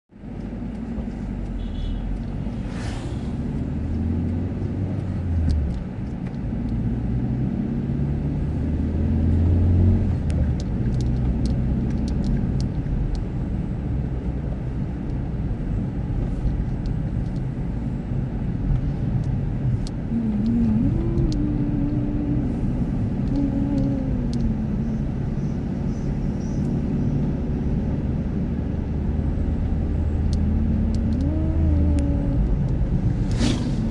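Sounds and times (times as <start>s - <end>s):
car engine running: 0.1s - 33.9s
road rumble: 0.1s - 33.9s.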